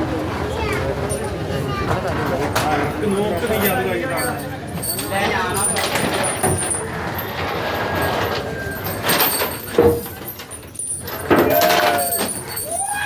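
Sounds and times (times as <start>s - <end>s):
crowd talking and calling out: 0.0s - 9.0s.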